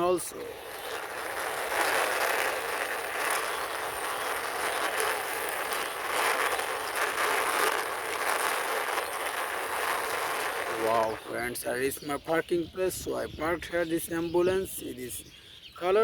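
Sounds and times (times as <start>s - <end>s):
toy plastic wheels rolling and scraping: 0.0s - 12.0s.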